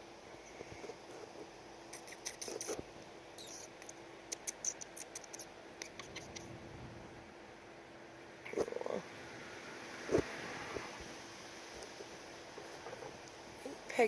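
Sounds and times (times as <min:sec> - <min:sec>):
baby woodpeckers pecking: 0:03.4 - 0:06.4.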